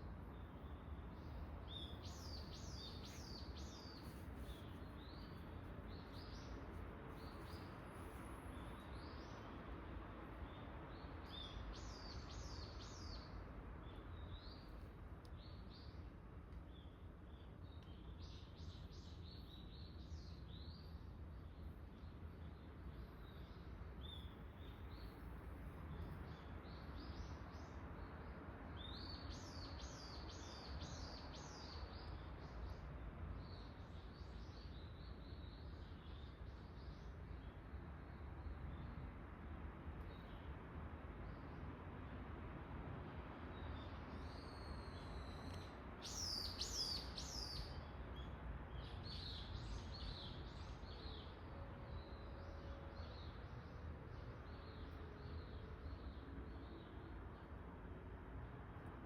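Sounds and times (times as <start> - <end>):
songbirds chirping: 0.0 - 59.0
soft bird chirps: 0.3 - 9.5.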